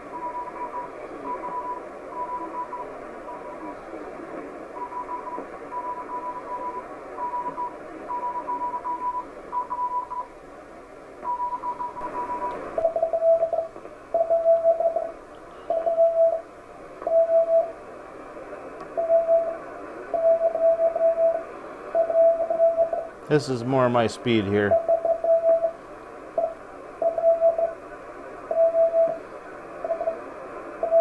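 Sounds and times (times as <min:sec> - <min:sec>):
lower-pitched morse code signal: 0:00.0 - 0:03.6, 0:04.8 - 0:10.3, 0:11.2 - 0:17.8, 0:19.0 - 0:23.1, 0:24.6 - 0:25.8, 0:26.4 - 0:27.8, 0:28.5 - 0:29.2, 0:29.8 - 0:31.0
morse code tones: 0:00.0 - 0:03.6, 0:04.8 - 0:10.3, 0:11.2 - 0:17.8, 0:19.0 - 0:23.1, 0:24.0 - 0:25.8, 0:26.4 - 0:27.8, 0:28.5 - 0:29.2, 0:29.8 - 0:30.2
radio band hiss: 0:00.0 - 0:09.5, 0:23.0 - 0:24.8, 0:29.2 - 0:30.8.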